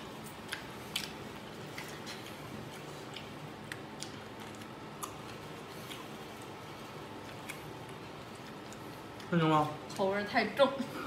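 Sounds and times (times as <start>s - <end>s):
wet mouth chewing clicks: 0.4s - 6.6s, 7.2s - 9.3s.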